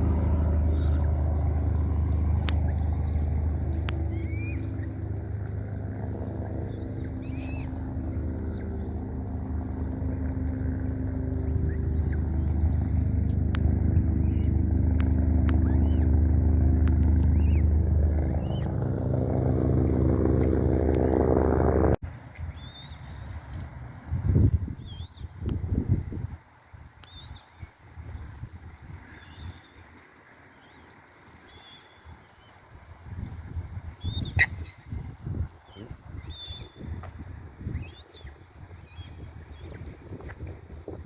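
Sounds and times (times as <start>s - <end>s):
motor engine running: 0.0s - 22.0s
high bird chirps: 2.6s - 5.1s.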